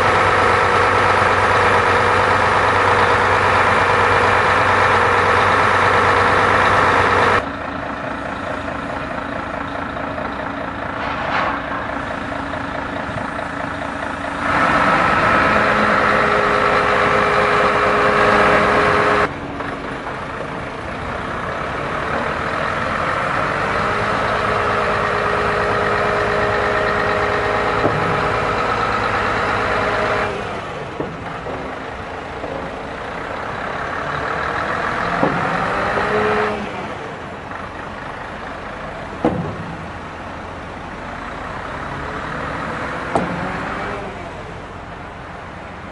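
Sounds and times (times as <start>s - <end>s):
truck engine drone: 0.0s - 45.9s
steady whine: 9.8s - 14.7s.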